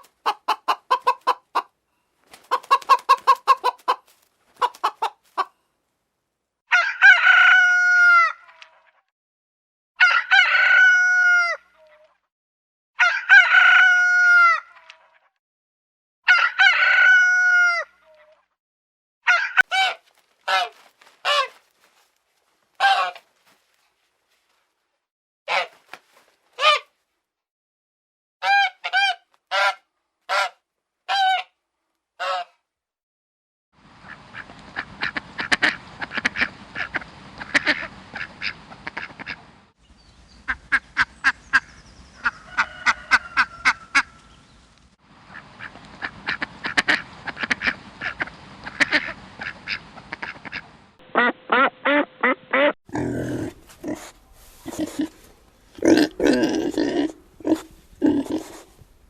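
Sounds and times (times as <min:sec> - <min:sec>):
background noise: 0:00.0 - 0:09.1, 0:19.3 - 0:27.4, 0:33.8 - 0:59.0
ducks quacking rapidly: 0:02.3 - 0:05.5, 0:19.3 - 0:21.6, 0:22.8 - 0:23.3, 0:34.0 - 0:39.5, 0:45.3 - 0:52.7
geese honking: 0:19.3 - 0:22.0, 0:22.8 - 0:23.6, 0:45.3 - 0:52.7.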